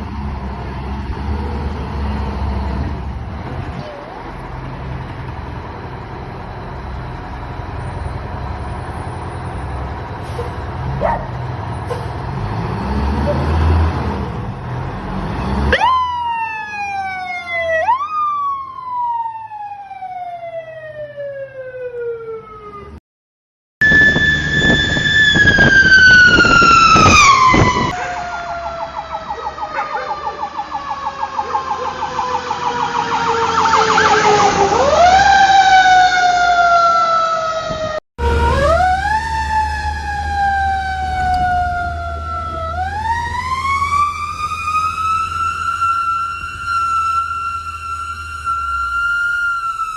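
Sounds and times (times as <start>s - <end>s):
truck engine hum: 0.0s - 19.0s, 23.8s - 49.9s
fire truck siren wailing: 15.5s - 23.0s, 23.8s - 49.9s
rapidly pulsing siren: 15.7s - 23.0s, 23.8s - 49.9s.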